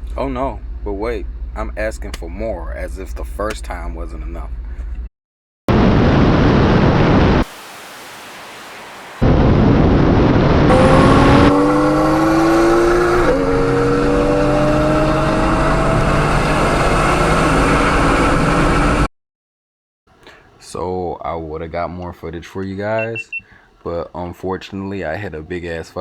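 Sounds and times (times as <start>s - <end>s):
wind and road noise: 0.0s - 5.1s, 5.7s - 19.1s
car engine accelerating: 9.3s - 19.1s.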